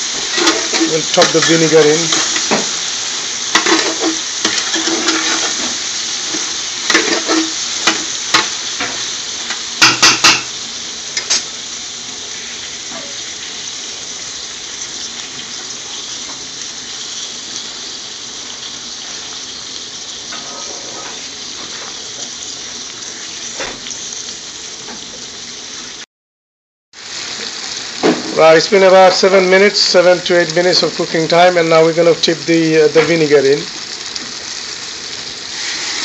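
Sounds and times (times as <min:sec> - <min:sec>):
peppers sizzling in a pot: 0:00.0 - 0:26.1, 0:27.0 - 0:36.0
spoon knocking against pot: 0:09.8 - 0:10.5.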